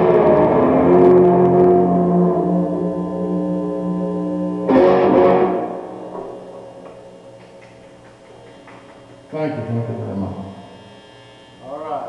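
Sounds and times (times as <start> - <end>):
guitar chords strummed: 0.0 - 8.0.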